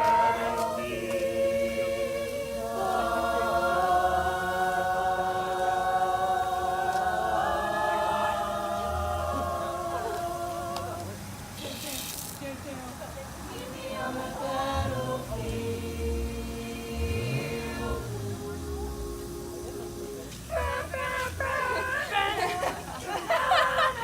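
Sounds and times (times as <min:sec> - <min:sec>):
voices singing in harmony: 0:00.0 - 0:12.1, 0:13.2 - 0:24.0.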